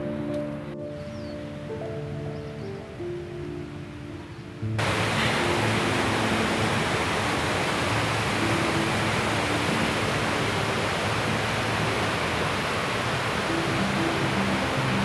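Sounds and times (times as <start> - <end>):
fast river rushing: 3.1 - 15.0.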